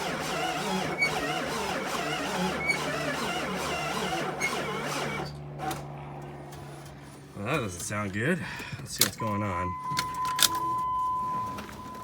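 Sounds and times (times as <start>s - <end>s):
diesel engine cranking: 0.0s - 8.0s.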